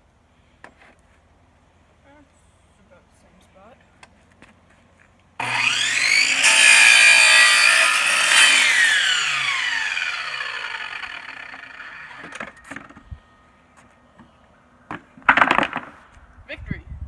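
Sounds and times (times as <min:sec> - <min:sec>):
chop saw cutting board: 0:05.4 - 0:12.6
saw blade spinning down whine: 0:05.4 - 0:12.6.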